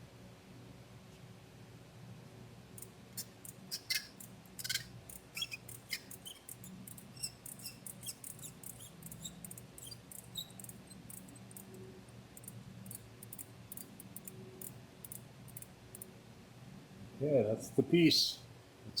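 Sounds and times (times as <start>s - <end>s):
short metal squeaks: 3.2s - 11.4s
sharp metallic clicks: 12.4s - 16.1s.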